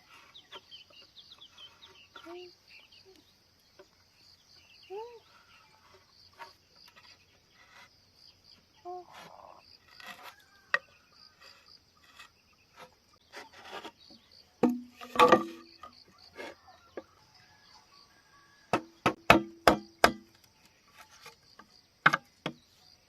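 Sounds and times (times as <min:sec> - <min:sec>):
bamboo clicking and knocking: 0:09.9 - 0:16.0, 0:18.7 - 0:22.7
hollow knocks with ring: 0:14.6 - 0:16.0, 0:18.7 - 0:20.3.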